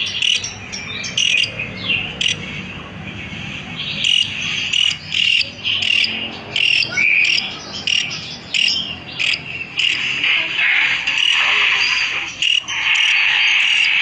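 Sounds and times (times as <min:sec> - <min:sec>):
songbird chirping: 0:00.0 - 0:10.0.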